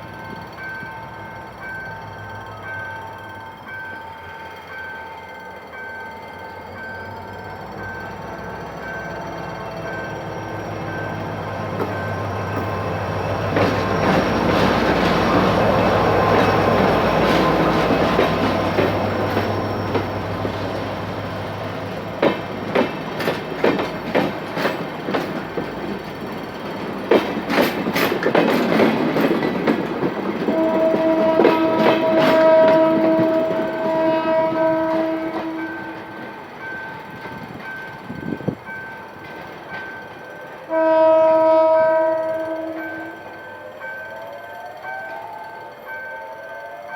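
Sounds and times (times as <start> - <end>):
diesel locomotive engine hum: 0.0 - 46.9
wheels clicking over rail joints: 7.6 - 43.4
train horn: 30.4 - 36.3, 40.6 - 43.4.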